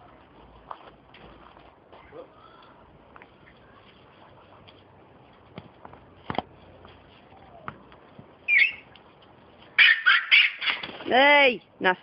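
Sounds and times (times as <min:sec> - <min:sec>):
parrot squawking loudly: 0:09.8 - 0:10.8.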